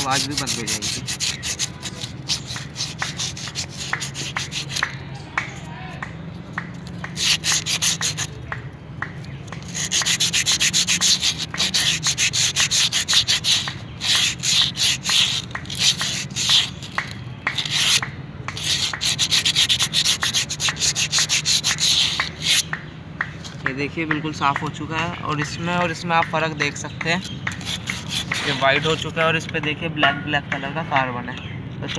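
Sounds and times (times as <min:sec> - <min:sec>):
sandpaper rubbing brake shoe: 0:00.0 - 0:05.7, 0:06.5 - 0:08.4, 0:09.2 - 0:22.7, 0:27.2 - 0:29.4.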